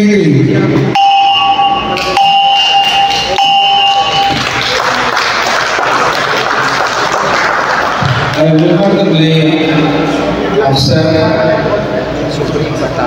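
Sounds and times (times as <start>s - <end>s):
applause: 4.2s - 8.7s.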